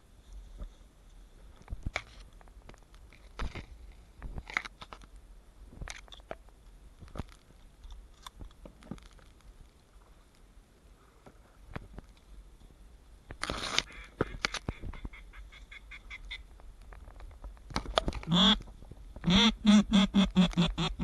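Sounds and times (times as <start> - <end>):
rustling: 0.0 - 19.3
clicks and knocks of gear: 1.6 - 5.2, 5.8 - 9.5, 16.6 - 19.3.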